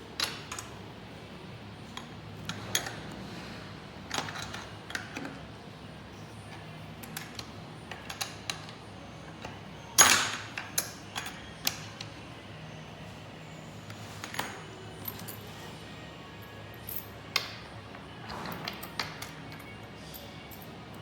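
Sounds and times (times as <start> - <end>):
metal parts and tools clinking: 1.9 - 3.2, 4.1 - 5.4, 9.4 - 12.1, 13.9 - 15.7.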